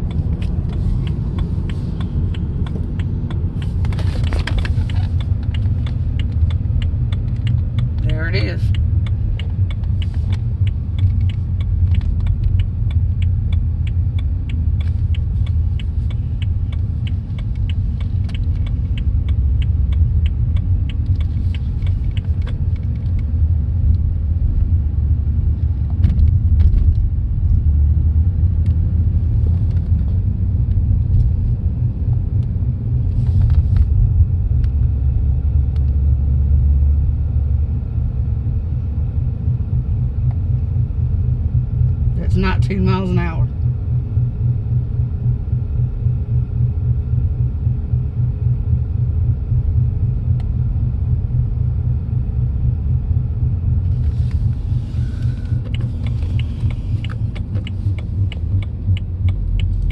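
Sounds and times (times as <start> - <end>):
low rotational rumble in car cabin: 0.0 - 59.9.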